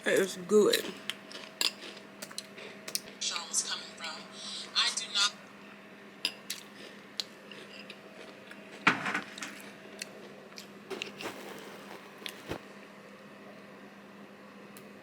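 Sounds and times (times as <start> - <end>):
crunchy chewing of cereal: 0.2 - 3.2, 6.3 - 12.7.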